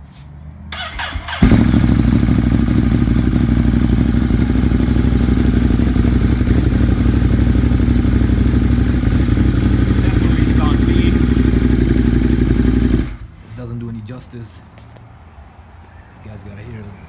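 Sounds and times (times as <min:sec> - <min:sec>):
motorcycle engine starting and idling: 0:00.7 - 0:13.7.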